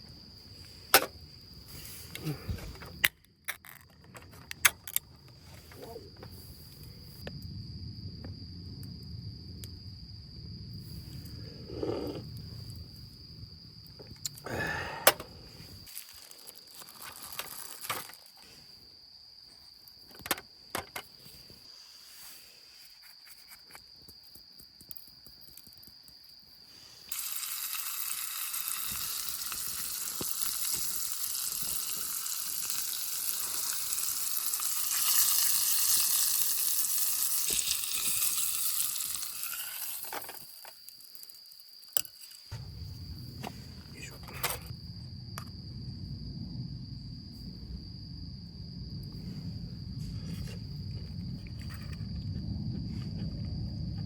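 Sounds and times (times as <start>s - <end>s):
food sizzling in a pan: 27.1s - 41.7s.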